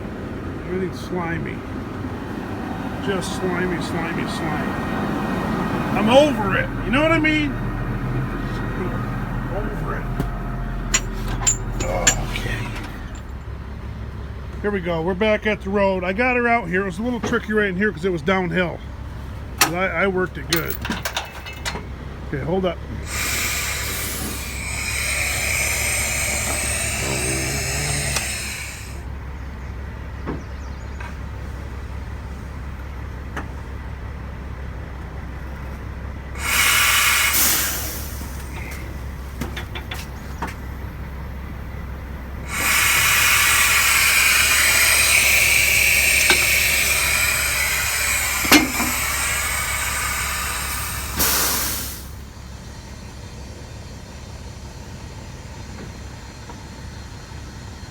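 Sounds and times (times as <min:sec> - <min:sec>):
diesel engine idling: 0:00.0 - 0:57.9
hissing air bursts: 0:23.0 - 0:29.1, 0:36.4 - 0:39.4, 0:42.4 - 0:52.3.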